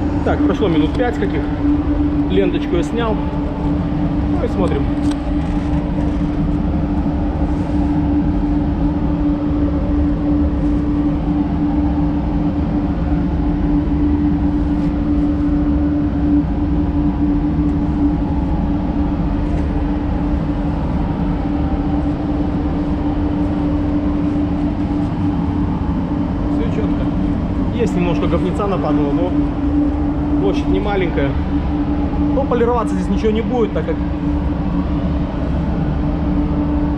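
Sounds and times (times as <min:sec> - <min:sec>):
ventilation fans humming: 0:00.0 - 0:36.9.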